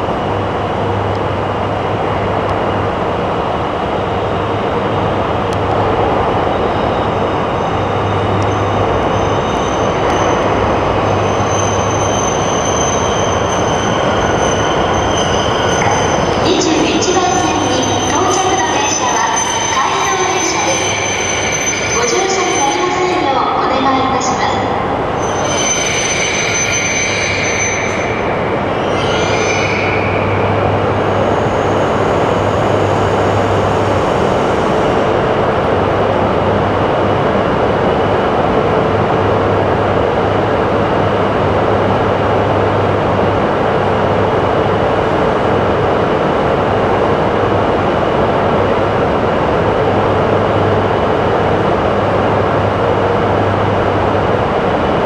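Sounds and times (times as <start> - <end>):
high-pitched wheel squeal: 6.5 - 23.0, 25.2 - 34.7.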